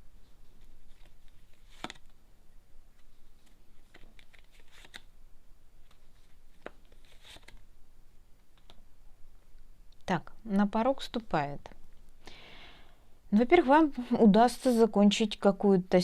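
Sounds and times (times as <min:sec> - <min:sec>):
cards snapping and sliding: 0:00.8 - 0:02.2, 0:03.4 - 0:05.1, 0:06.6 - 0:07.6.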